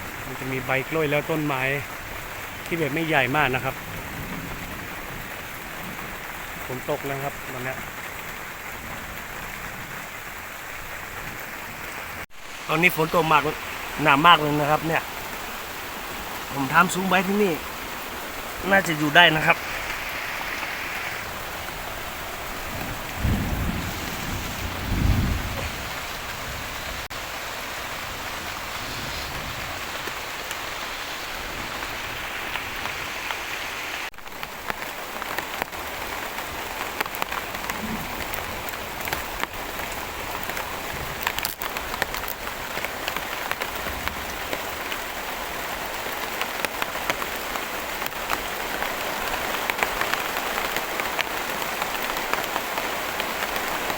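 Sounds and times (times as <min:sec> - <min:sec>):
heavy rain on leaves: 0:00.0 - 0:53.9
low rumbles: 0:17.5 - 0:27.2.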